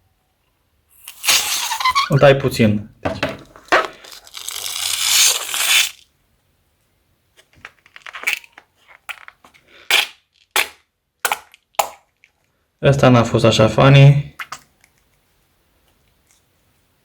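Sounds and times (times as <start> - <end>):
harsh rushing of glue from balloon: 1.0 - 2.2.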